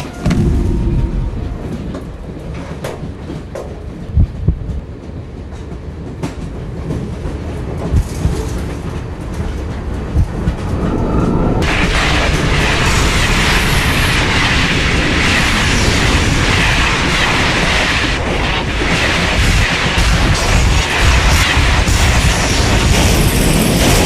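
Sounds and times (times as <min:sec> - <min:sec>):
loud rushing noise: 0:00.0 - 0:03.2, 0:09.4 - 0:23.2
train rumbling: 0:00.0 - 0:24.0.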